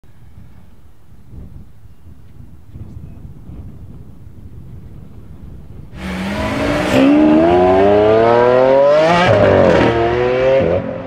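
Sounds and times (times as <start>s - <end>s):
car engine accelerating hard: 6.0s - 11.0s.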